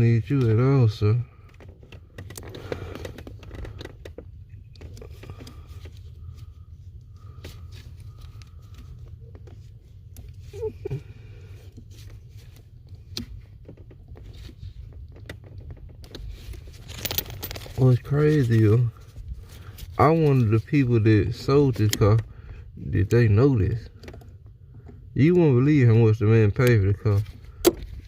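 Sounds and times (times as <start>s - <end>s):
low steady hum: 0.0s - 28.0s
hands handling wiring: 1.4s - 22.3s.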